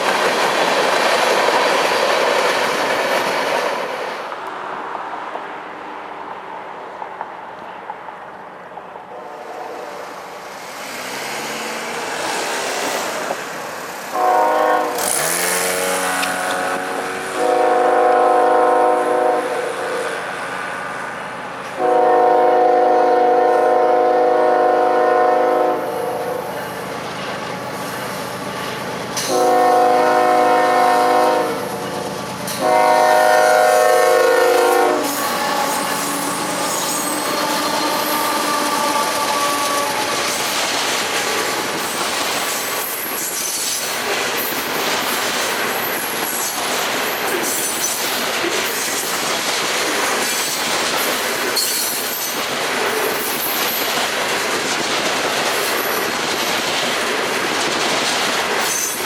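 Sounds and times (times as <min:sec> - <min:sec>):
train wheel clatter: 0:00.0 - 0:04.4, 0:14.4 - 0:16.6, 0:34.5 - 0:59.0
train rumble: 0:00.0 - 0:59.0
locomotive air horn blasts: 0:09.1 - 0:10.1, 0:14.1 - 0:20.0, 0:21.8 - 0:26.4, 0:29.3 - 0:31.8, 0:32.6 - 0:40.1.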